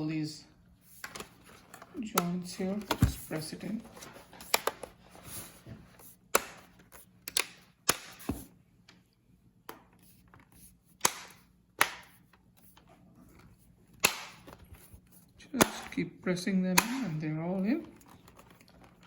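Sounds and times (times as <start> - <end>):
plastic clips clicking into place: 7.2 - 8.2.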